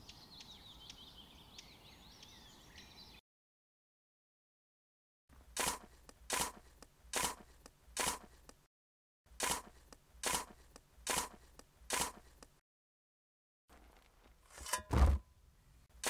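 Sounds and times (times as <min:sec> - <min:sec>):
hoe scraping and chopping soil: 0:05.4 - 0:08.5, 0:09.3 - 0:12.4, 0:13.7 - 0:15.3.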